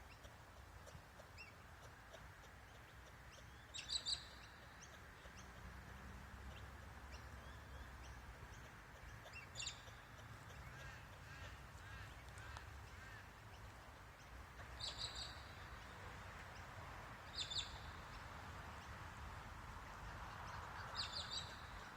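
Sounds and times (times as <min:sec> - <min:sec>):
bird chirps: 0:00.0 - 0:16.6, 0:17.2 - 0:18.9, 0:20.2 - 0:21.9.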